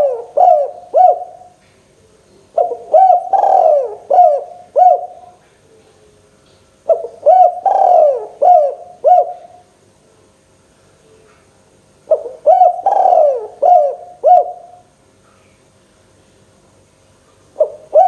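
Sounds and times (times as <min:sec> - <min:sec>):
dove cooing: 0:00.0 - 0:01.6, 0:02.5 - 0:06.1, 0:06.9 - 0:09.6, 0:12.1 - 0:14.8, 0:17.6 - 0:18.0.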